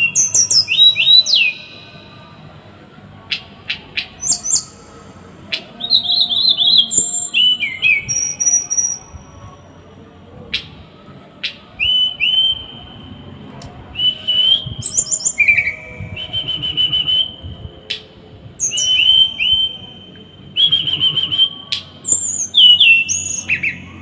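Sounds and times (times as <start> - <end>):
songbird singing: 0.0 - 2.5, 3.3 - 9.8, 14.0 - 24.0.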